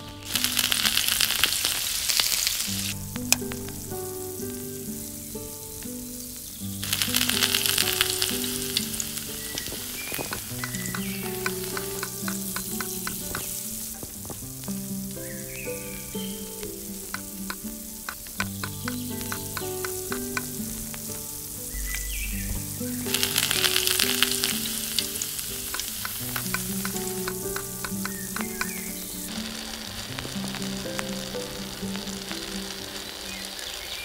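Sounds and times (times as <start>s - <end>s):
hot oil sizzling in a pot: 0.0s - 34.0s
loud hiss of paste in oil: 0.2s - 3.0s, 6.6s - 14.0s, 19.0s - 34.0s.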